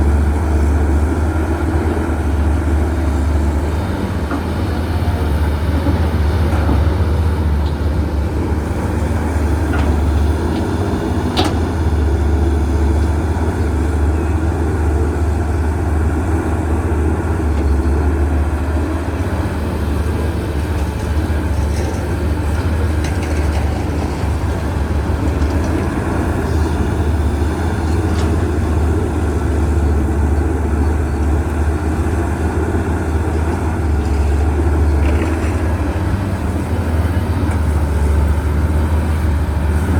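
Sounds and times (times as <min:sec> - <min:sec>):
excavator diesel engine drone: 0:00.0 - 0:39.9.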